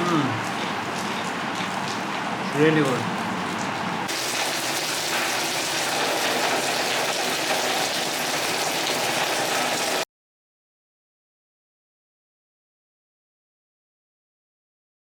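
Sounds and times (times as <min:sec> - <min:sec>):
heavy rain pouring: 0:00.0 - 0:10.1.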